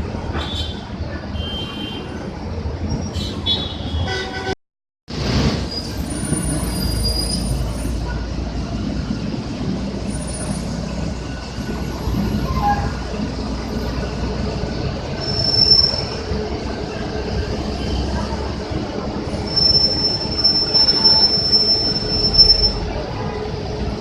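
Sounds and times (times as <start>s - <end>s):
buses rumbling past: 0.0s - 24.0s
high brake squeal: 5.5s - 8.2s, 12.3s - 13.1s, 15.2s - 16.4s, 19.3s - 23.0s.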